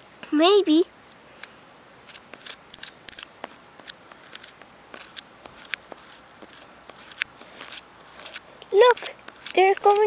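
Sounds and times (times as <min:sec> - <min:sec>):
crunching snow: 0:02.0 - 0:10.0.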